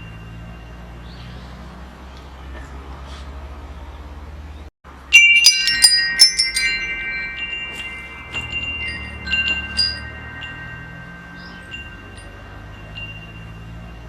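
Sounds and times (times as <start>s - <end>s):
metal wind chimes ringing: 0.0s - 2.0s, 4.9s - 14.0s.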